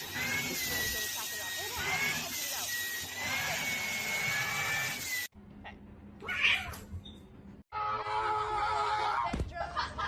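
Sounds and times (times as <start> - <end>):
cat meowing: 6.2 - 6.8.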